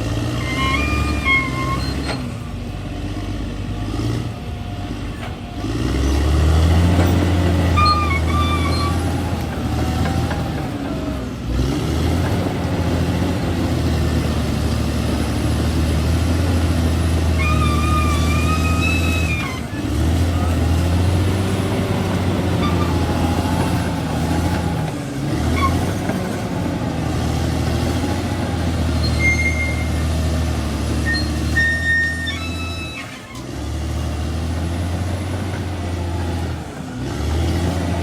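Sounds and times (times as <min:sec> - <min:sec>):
bulldozer diesel engine running: 0:00.0 - 0:38.0
short high squeaks: 0:00.3 - 0:02.4, 0:07.1 - 0:09.4, 0:17.3 - 0:20.5, 0:22.4 - 0:23.3, 0:25.4 - 0:26.1, 0:28.9 - 0:30.2, 0:30.8 - 0:33.6.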